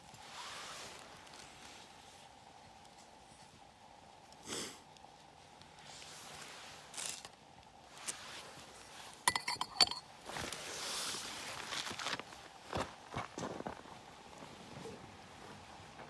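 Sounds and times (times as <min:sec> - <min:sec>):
small hard objects clinking: 0:09.3 - 0:10.0.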